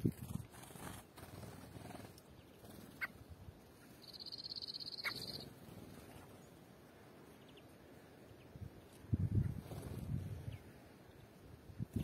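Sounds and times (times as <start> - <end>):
faint outdoor background: 0.0 - 12.0
songbird high rapid trill: 3.8 - 6.2
short sharp bird chirps: 4.0 - 5.5.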